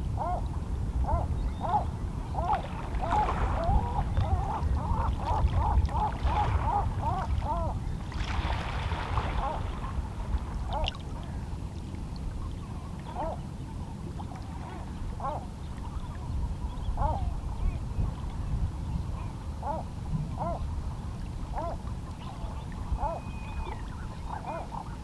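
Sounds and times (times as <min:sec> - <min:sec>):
waterbird calls: 0:00.2 - 0:11.5, 0:12.5 - 0:13.4, 0:14.2 - 0:17.8, 0:19.1 - 0:20.7, 0:21.5 - 0:25.0
waves lapping against rocks: 0:08.0 - 0:11.4.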